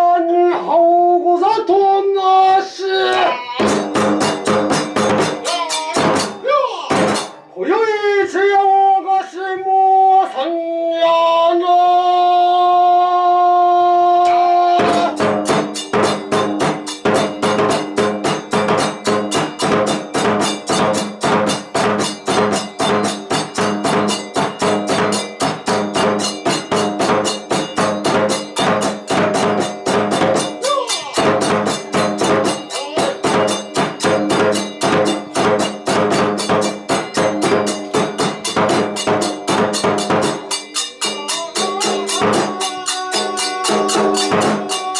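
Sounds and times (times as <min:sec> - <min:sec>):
drum and hand cymbals beat: 0:03.5 - 0:07.5, 0:14.3 - 0:44.9.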